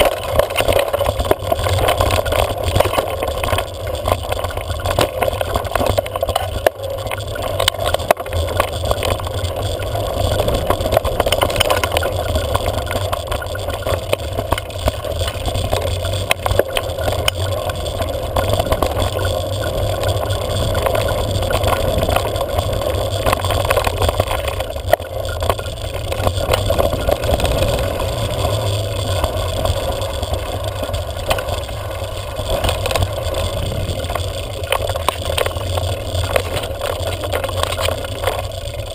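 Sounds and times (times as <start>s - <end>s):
small clicks and knocks: 0.0s - 38.9s
wind buffeting microphone: 25.8s - 35.4s.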